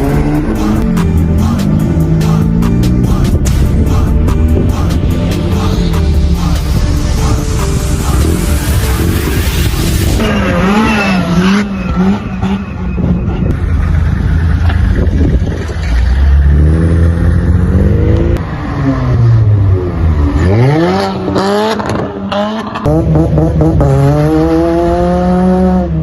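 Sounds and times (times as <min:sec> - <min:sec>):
cars revving and accelerating: 0:00.0 - 0:26.0.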